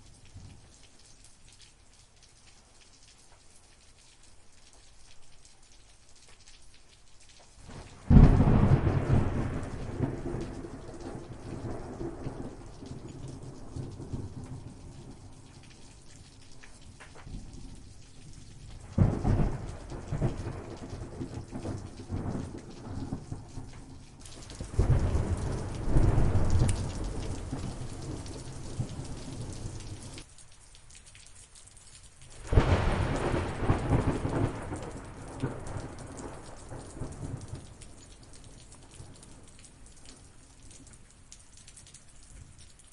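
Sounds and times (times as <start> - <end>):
steady rain: 0.0 - 42.9
thunder rumbling: 7.7 - 15.3, 16.9 - 30.2, 32.4 - 39.4.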